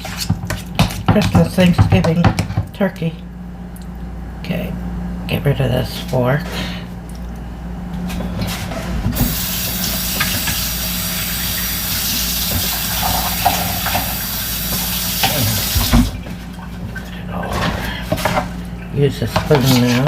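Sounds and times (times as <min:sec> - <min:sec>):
water running from a tap: 0:09.2 - 0:16.1.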